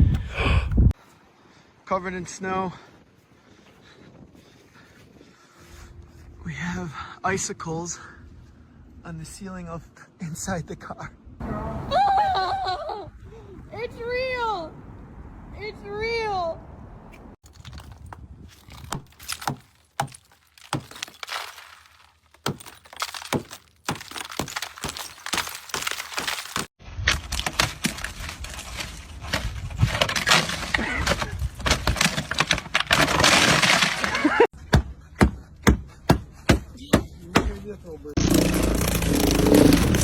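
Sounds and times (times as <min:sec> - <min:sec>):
ice cracking and crunching: 0:17.4 - 0:34.5, 0:38.2 - 0:40.0.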